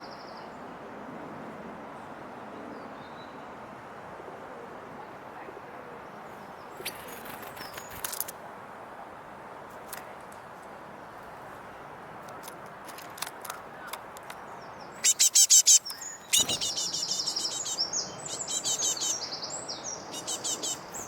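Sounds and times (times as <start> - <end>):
faint high bird chirps: 14.7 - 21.0
background hiss: 14.9 - 21.0.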